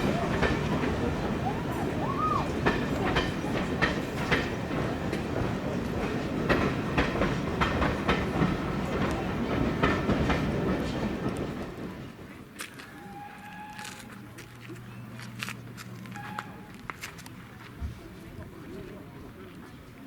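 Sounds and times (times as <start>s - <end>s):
wheels clacking over rail joints: 0.0s - 12.9s
train rumbling past: 0.0s - 16.9s.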